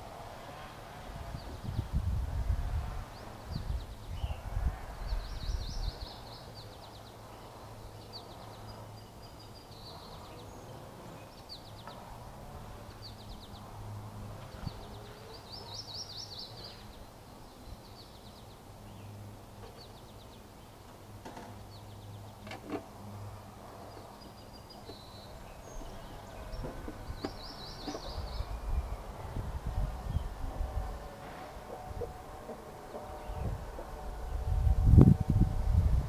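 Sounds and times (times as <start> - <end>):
songbirds trilling: 0.0 - 34.8.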